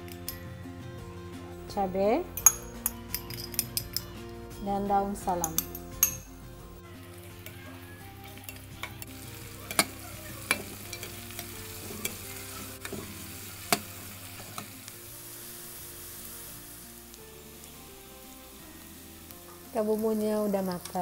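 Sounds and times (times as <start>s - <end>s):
food sizzling in hot oil: 5.3s - 21.0s
metal spatula scraping a pan: 9.6s - 14.8s.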